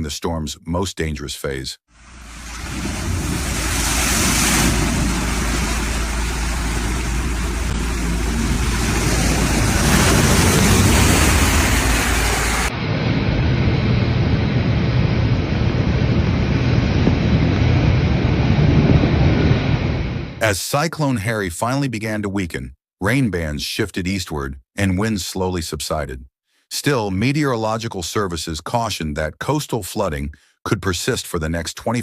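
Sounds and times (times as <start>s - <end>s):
heavy surf: 2.0s - 14.7s
wind buffeting microphone: 2.2s - 20.4s.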